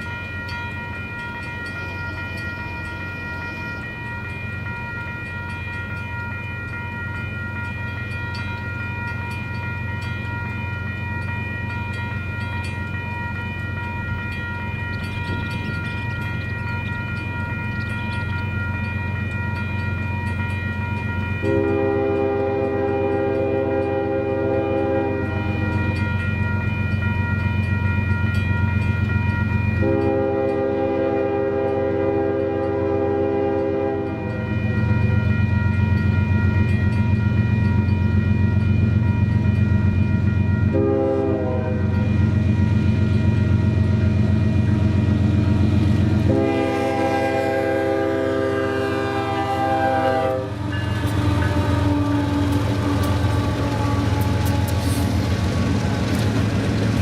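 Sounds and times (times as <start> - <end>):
freight train rumbling past: 0.0 - 57.0
locomotive horn blasts: 21.4 - 26.0, 29.8 - 34.5, 40.7 - 42.1, 46.1 - 55.2.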